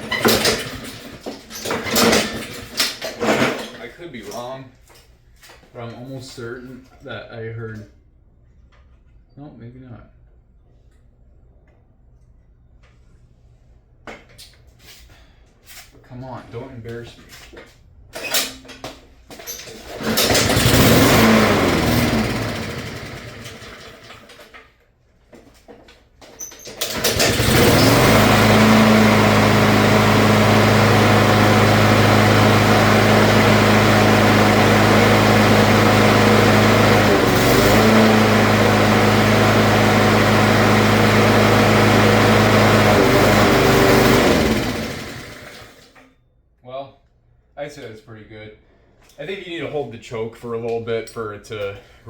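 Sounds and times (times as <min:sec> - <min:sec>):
lawnmower engine running: 0:00.0 - 0:03.7, 0:19.6 - 0:24.6, 0:26.7 - 0:46.0
lawnmower pull-start: 0:00.0 - 0:03.8, 0:19.3 - 0:24.7, 0:26.4 - 0:46.1.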